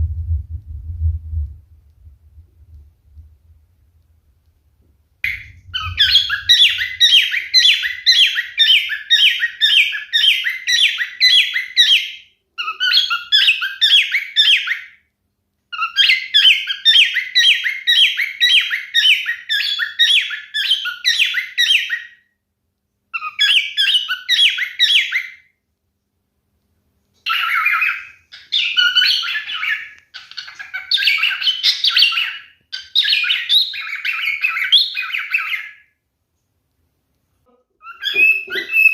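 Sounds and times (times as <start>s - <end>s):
cockatiel chirping and warbling: 5.3s - 15.0s, 15.7s - 22.2s, 23.2s - 25.4s, 27.2s - 35.9s, 37.8s - 38.9s.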